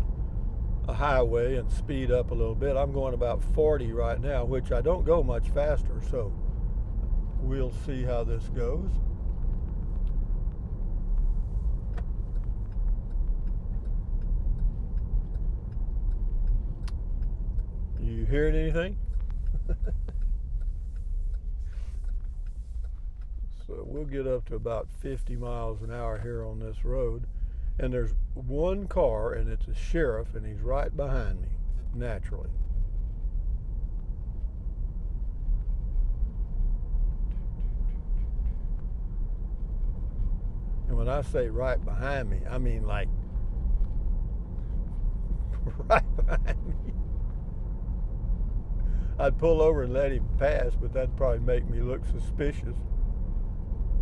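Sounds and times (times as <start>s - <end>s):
vehicle road noise rumble: 0.0s - 54.0s
faint ticks: 9.0s - 28.3s.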